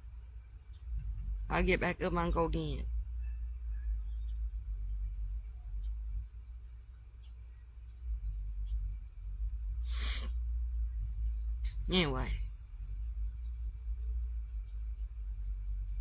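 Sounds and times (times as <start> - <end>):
crickets chirring: 0.0 - 16.0
low rumble: 0.9 - 6.8.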